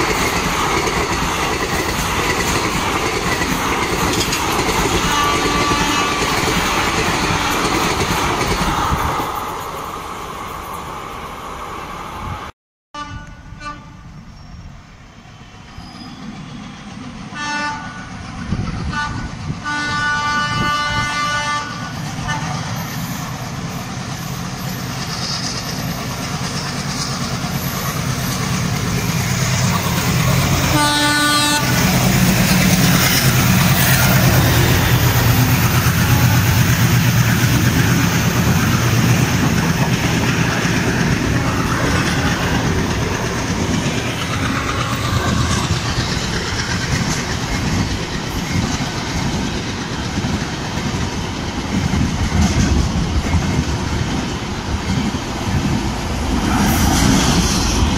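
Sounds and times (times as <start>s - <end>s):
wheels clattering over rail joints: 0.0s - 8.7s
train coaches rumbling past: 0.0s - 57.9s
train horn blast: 5.0s - 6.5s, 13.0s - 14.1s, 17.3s - 18.1s, 18.8s - 22.6s, 30.6s - 31.9s.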